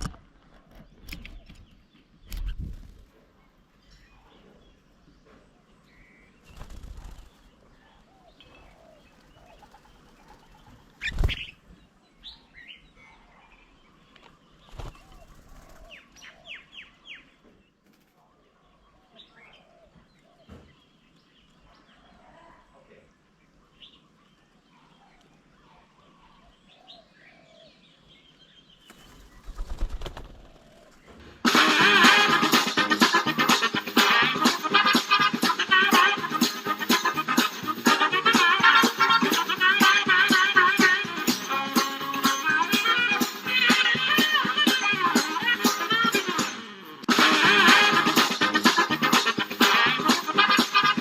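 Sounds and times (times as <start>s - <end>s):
faint bird calls: 0.0s - 31.5s
loud flutter of wings: 2.2s - 3.2s, 6.4s - 11.6s, 14.6s - 16.3s, 28.8s - 31.5s
bird wingbeats rustling: 2.3s - 3.4s, 6.4s - 11.7s, 14.6s - 16.3s, 28.8s - 31.5s
music: 31.4s - 51.0s.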